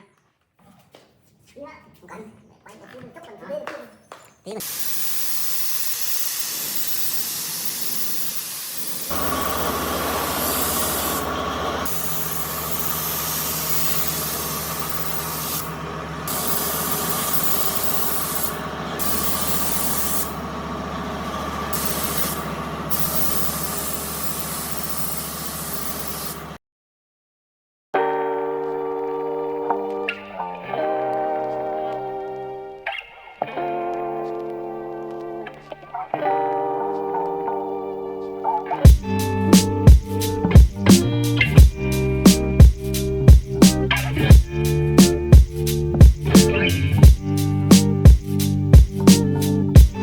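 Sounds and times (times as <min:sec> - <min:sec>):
compressed-air spray gun hissing: 0:04.6 - 0:26.6, 0:38.9 - 0:50.0
machine humming: 0:04.6 - 0:26.6.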